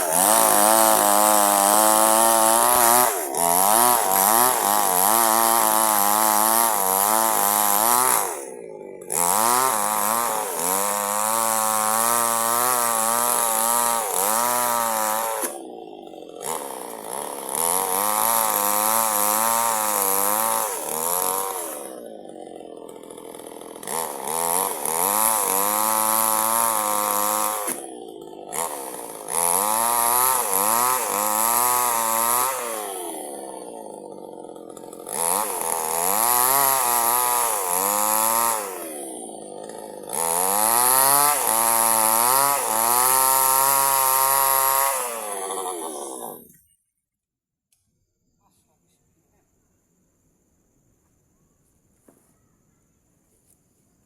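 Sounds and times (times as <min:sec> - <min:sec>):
chainsaw cutting wood: 0:00.0 - 0:46.7.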